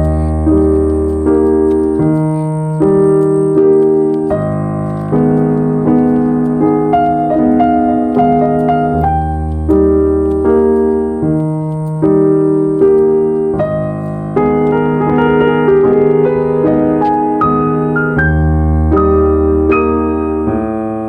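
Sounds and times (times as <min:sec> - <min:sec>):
slow calm piano chords: 0:00.0 - 0:21.0.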